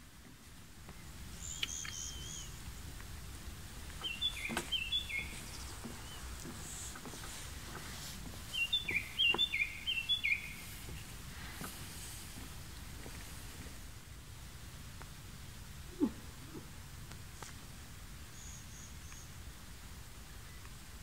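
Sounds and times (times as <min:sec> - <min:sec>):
outdoor background: 0:00.0 - 0:21.0
small songbird singing: 0:00.9 - 0:11.7, 0:18.2 - 0:19.4.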